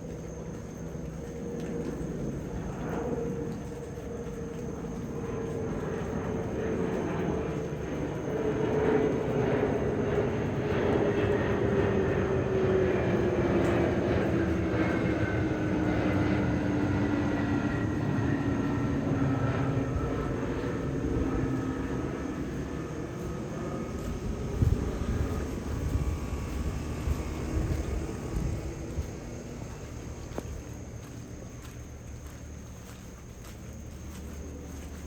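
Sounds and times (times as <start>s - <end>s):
jet airliner flying past: 0.0s - 35.0s.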